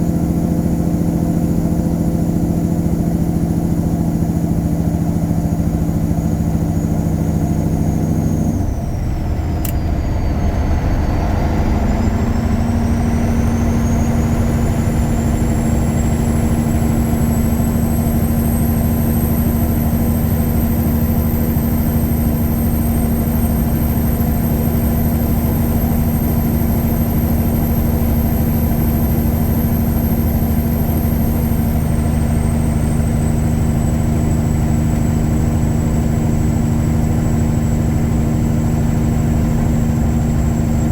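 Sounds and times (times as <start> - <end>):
diesel truck engine running: 0.0 - 40.9
high whine: 8.5 - 40.9
click: 9.6 - 9.9.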